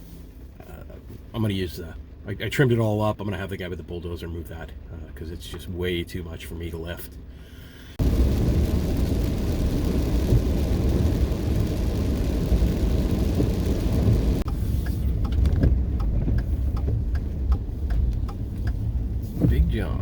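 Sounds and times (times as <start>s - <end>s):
truck engine low rumble: 0.0s - 20.0s
tyres hissing on wet road: 7.9s - 15.1s.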